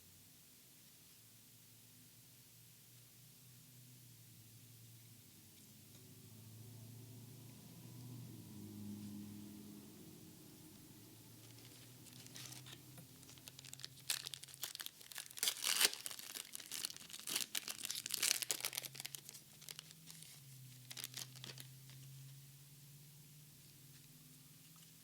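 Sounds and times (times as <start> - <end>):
foil wrapper tearing and crinkling: 11.4 - 21.7.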